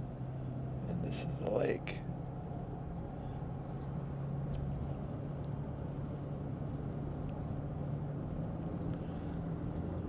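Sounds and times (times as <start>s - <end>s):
low engine hum: 0.0s - 10.0s
road rumble: 0.0s - 10.0s.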